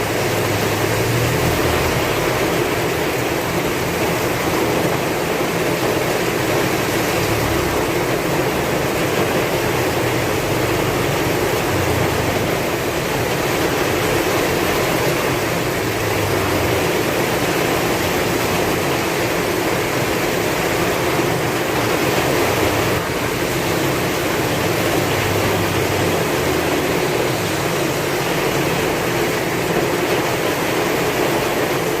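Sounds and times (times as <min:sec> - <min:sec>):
heavy rain in strong wind: 0:00.0 - 0:32.0.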